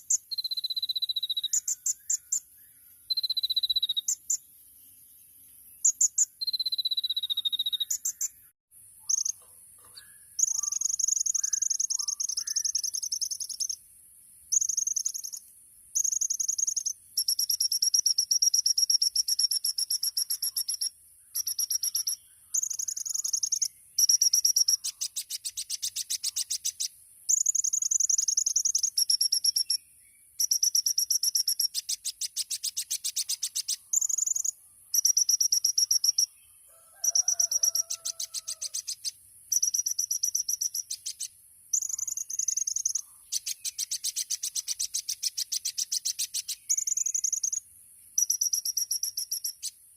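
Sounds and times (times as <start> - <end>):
sunbird singing high trills: 0.0 - 13.8, 14.5 - 15.4, 16.0 - 49.8
faint bird chirps: 0.0 - 49.9.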